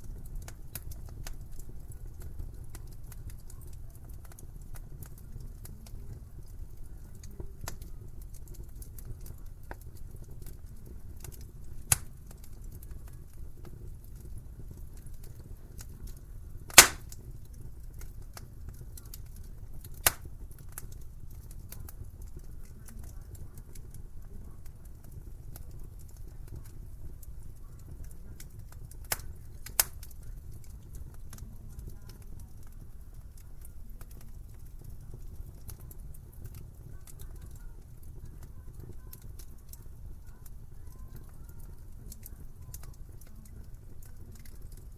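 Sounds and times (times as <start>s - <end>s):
wood fire crackling: 0.0s - 44.9s
sharp pops of fire: 0.1s - 23.2s, 27.9s - 33.4s.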